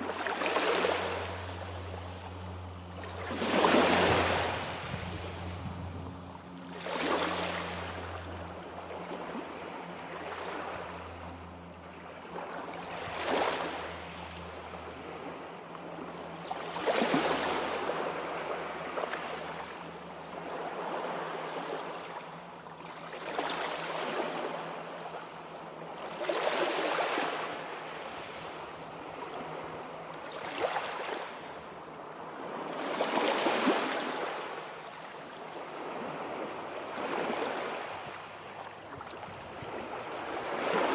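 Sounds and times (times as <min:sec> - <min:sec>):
sea waves breaking on shore: 0:00.0 - 0:40.9.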